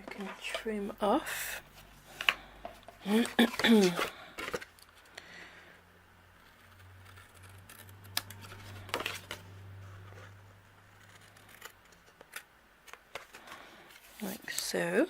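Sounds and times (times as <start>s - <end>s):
scissors snipping cardstock: 6.5s - 9.4s.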